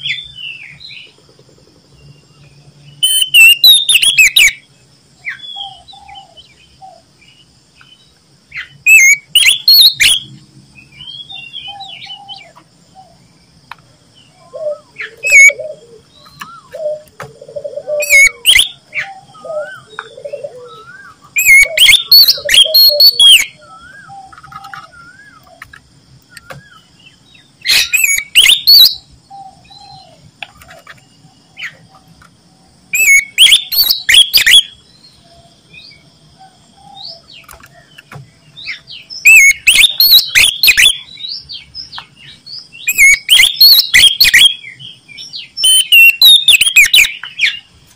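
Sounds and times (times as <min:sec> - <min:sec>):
bird singing loudly: 0:02.9 - 0:07.1, 0:08.6 - 0:13.2, 0:14.3 - 0:25.6, 0:26.3 - 0:30.2, 0:32.9 - 0:36.0, 0:38.6 - 0:47.7.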